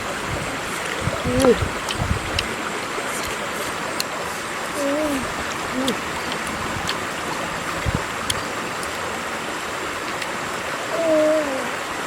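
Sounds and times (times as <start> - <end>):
faint clicks: 0.0 - 2.6, 5.4 - 9.1
rushing water-like noise: 0.0 - 12.0.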